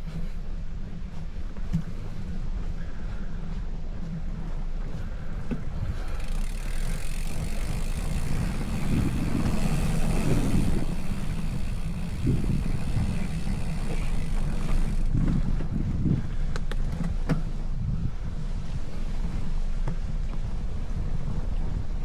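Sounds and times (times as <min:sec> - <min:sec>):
wind buffeting microphone: 0:00.0 - 0:22.0
steady rushing hiss: 0:05.7 - 0:15.1.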